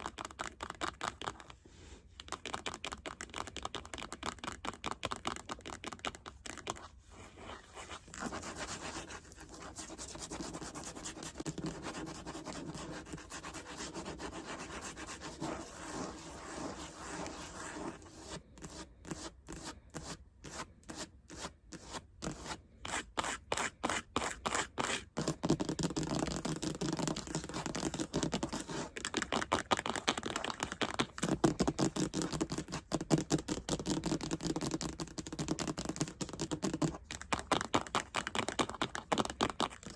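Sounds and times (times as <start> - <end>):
fingernails scratching a surface: 7.4 - 19.7.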